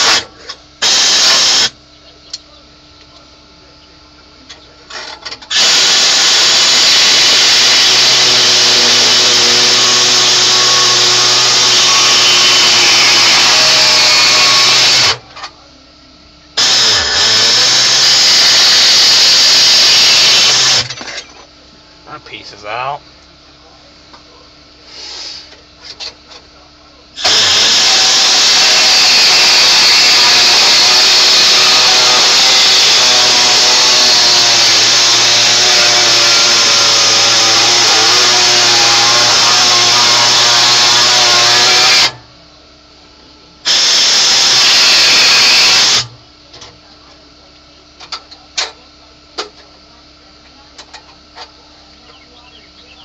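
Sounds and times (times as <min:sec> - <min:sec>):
air die grinder whining: 0:00.0 - 0:01.8, 0:04.9 - 0:15.3, 0:16.6 - 0:21.1, 0:27.2 - 0:42.3, 0:43.6 - 0:46.2.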